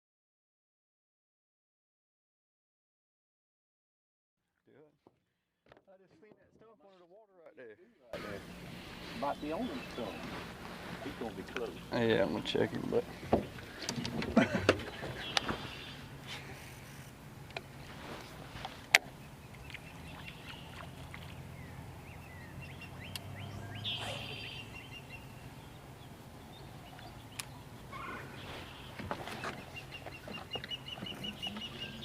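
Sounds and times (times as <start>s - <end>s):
low steady hum: 8.1s - 32.0s
birds calling and chirping: 8.2s - 32.0s
sharp clicks: 23.1s - 23.3s.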